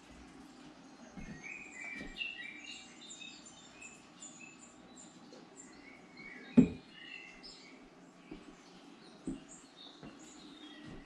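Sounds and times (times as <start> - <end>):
small birds chirping: 0.4 - 11.0.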